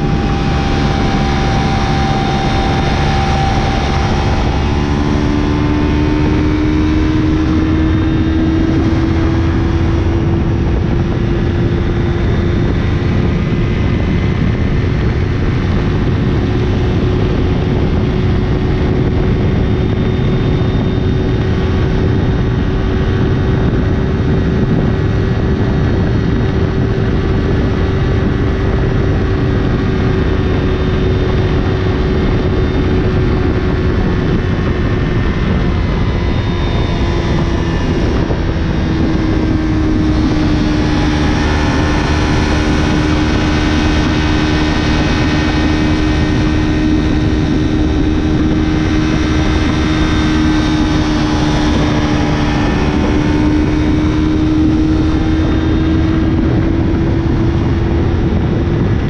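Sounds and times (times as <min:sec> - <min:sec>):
heavy wind rush: 0:00.0 - 0:59.0
motorcycle engine at high rpm: 0:00.0 - 0:59.0.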